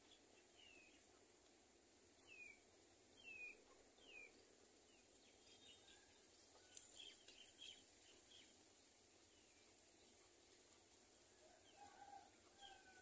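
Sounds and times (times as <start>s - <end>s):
quiet outdoor hiss: 0.0s - 13.0s
faint bird chirps: 2.2s - 2.6s, 3.2s - 8.6s.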